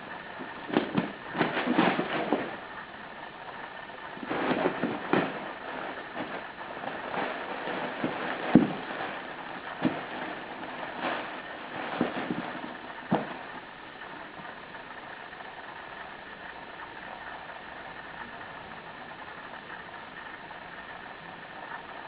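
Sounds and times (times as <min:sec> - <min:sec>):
rustling of play tunnel: 0:00.0 - 0:22.0
knocks and thumps: 0:00.4 - 0:02.6, 0:04.2 - 0:05.5, 0:07.2 - 0:09.2, 0:09.8 - 0:10.3, 0:11.0 - 0:13.5.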